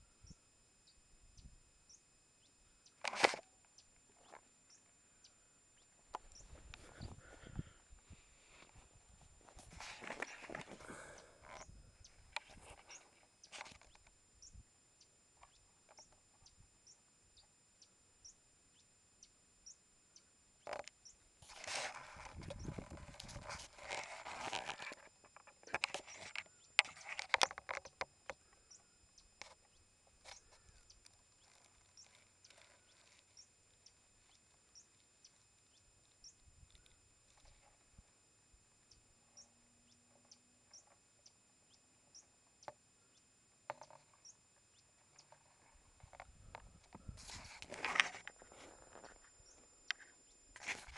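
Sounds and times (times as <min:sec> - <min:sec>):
rustling handling noise: 0:08.1 - 0:11.2, 0:21.4 - 0:27.8, 0:45.3 - 0:49.4
faint ticks and clicks: 0:20.1 - 0:38.1.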